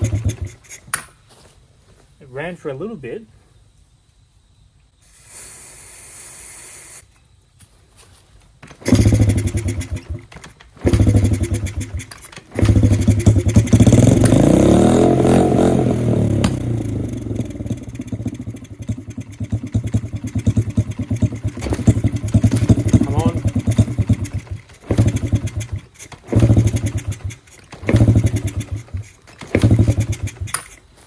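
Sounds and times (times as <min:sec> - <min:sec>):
small motorcycle engine: 0:00.0 - 0:00.8, 0:08.8 - 0:31.0.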